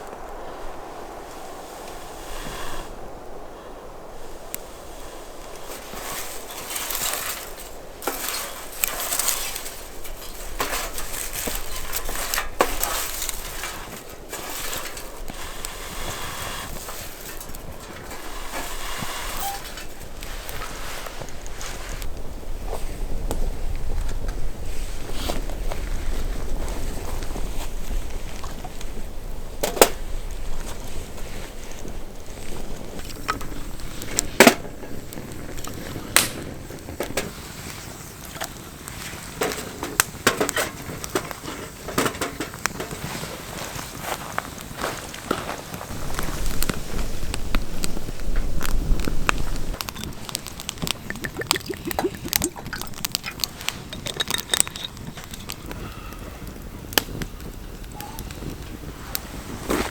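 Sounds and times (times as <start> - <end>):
campfire crackling: 0.0 - 59.9
faint steady hiss: 0.0 - 59.9
sharp pops: 45.9 - 55.9.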